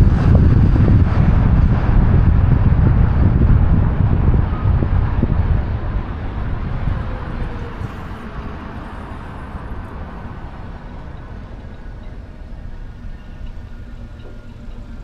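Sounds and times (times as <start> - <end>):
wind and road rumble: 0.0 - 15.0.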